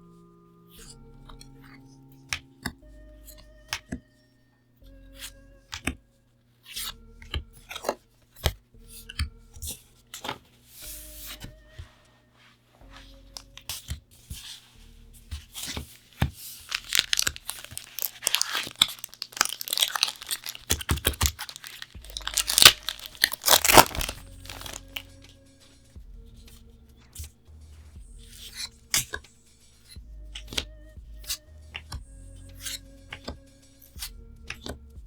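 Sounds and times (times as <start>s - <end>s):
foil wrapper tearing and crinkling: 16.6s - 25.1s.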